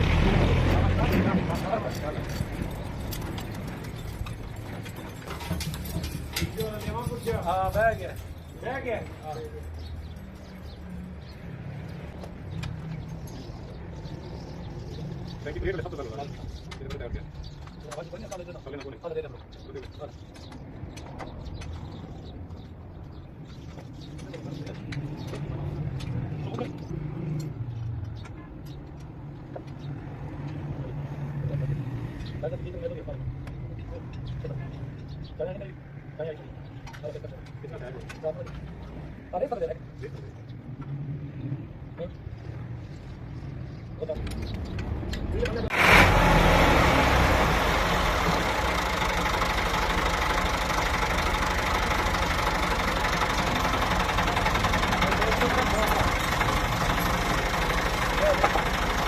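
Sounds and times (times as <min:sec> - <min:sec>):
light clicks and rattles: 0:01.1 - 0:10.5
tractor diesel engine running: 0:45.7 - 0:59.0.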